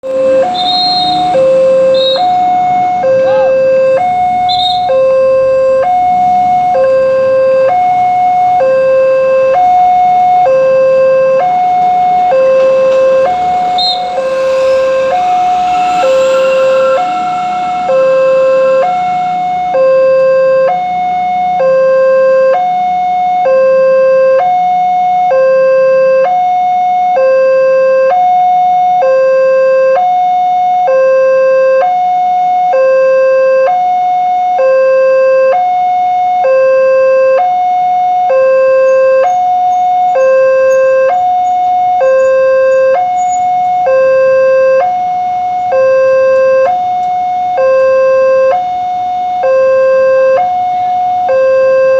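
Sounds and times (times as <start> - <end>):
level crossing two-tone alarm: 0.0 - 51.9.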